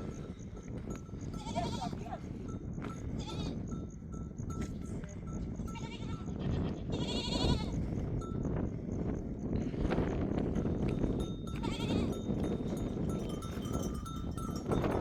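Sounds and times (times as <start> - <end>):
sheep and goats bleating: 1.2 - 2.3, 3.0 - 3.8, 5.6 - 7.9, 11.4 - 12.3
neck bells clinking: 10.9 - 15.0.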